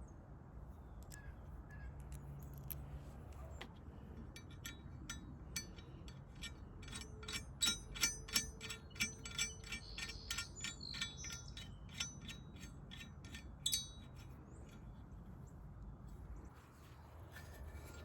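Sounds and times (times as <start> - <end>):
small steel parts clinking: 2.1 - 2.8, 4.2 - 14.9.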